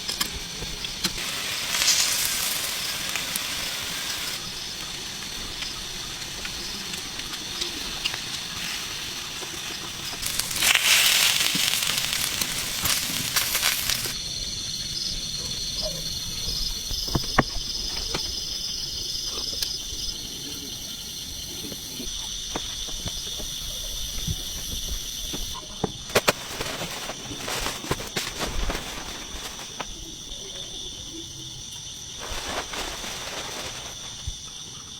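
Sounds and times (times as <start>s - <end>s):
fire crackling and snapping: 0.0s - 14.2s, 22.3s - 30.0s, 32.2s - 34.5s
food sizzling in a pan: 0.0s - 14.2s, 32.2s - 34.5s
insect chorus: 0.0s - 34.9s.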